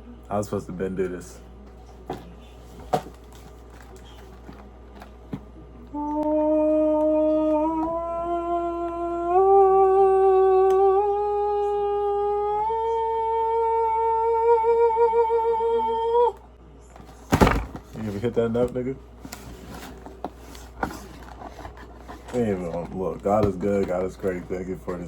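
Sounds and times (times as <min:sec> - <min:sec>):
man humming: 0:05.9 - 0:16.5.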